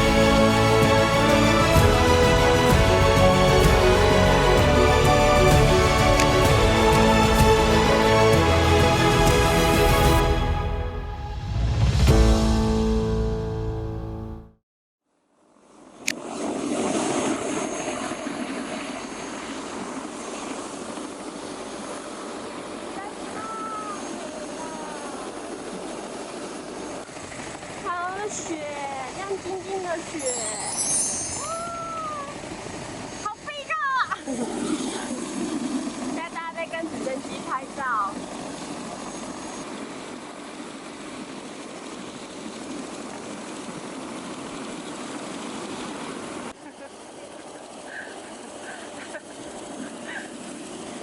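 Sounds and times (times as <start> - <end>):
helicopter engine and rotor running: 34.8 - 51.0.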